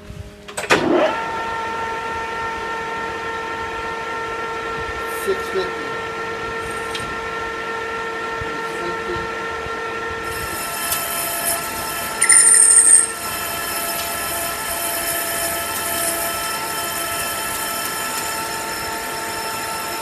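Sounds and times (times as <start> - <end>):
metal lathe gear whine: 0.9 - 20.0
loud high-pitched squeal: 10.2 - 20.0.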